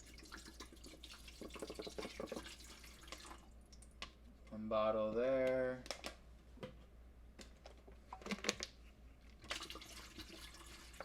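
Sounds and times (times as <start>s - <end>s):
plastic bottle crinkling: 8.1s - 8.8s.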